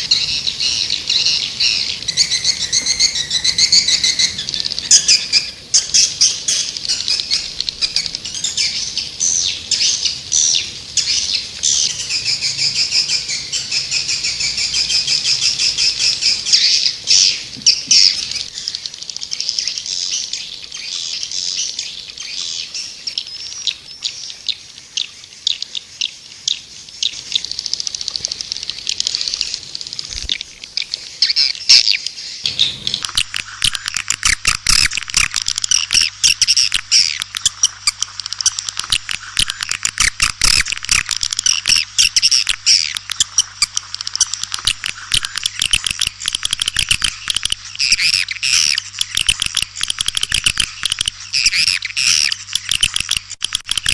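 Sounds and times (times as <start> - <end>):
swiftlets twittering: 32.5 - 53.9.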